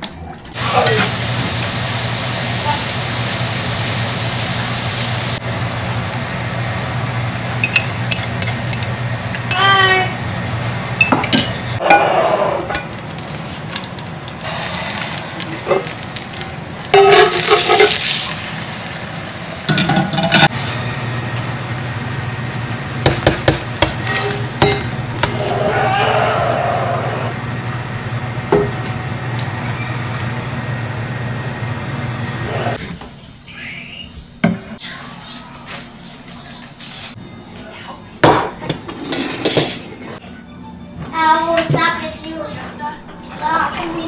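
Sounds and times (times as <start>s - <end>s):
food frying in a pan: 0.6s - 11.8s, 12.7s - 27.7s
utensil clinking and scraping pan: 16.9s - 18.1s, 23.1s - 25.4s.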